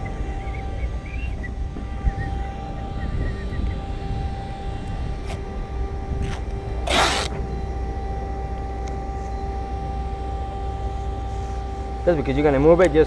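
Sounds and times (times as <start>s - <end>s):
steady low hum: 0.0s - 13.0s
masking tape ripped off roll: 6.2s - 7.4s.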